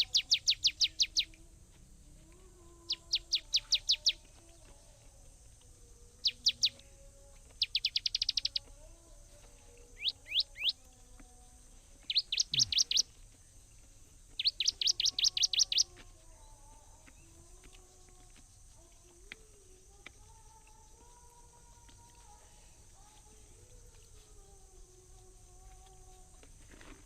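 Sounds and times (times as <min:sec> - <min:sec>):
songbird chirping: 0:00.0 - 0:27.0.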